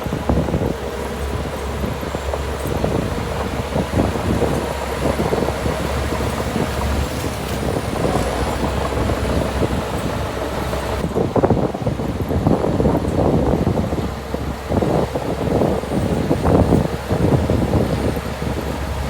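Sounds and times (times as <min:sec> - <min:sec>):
rattling and clatter: 0:00.0 - 0:13.9
heavy diesel engine running: 0:00.0 - 0:19.0
wind on microphone: 0:00.0 - 0:19.0.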